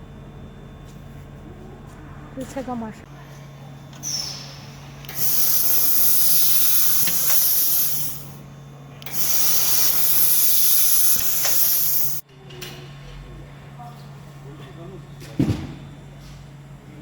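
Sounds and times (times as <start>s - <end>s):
low machine hum: 0.0s - 17.0s
gas hissing from welding head: 4.0s - 8.4s, 9.0s - 12.2s.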